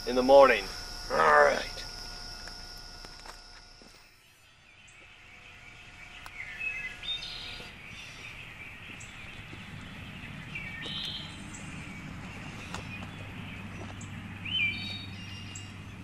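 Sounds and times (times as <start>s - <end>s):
birds chirping: 0.0s - 16.0s
outdoor background noise: 0.0s - 16.0s
low steady rumble: 4.6s - 16.0s.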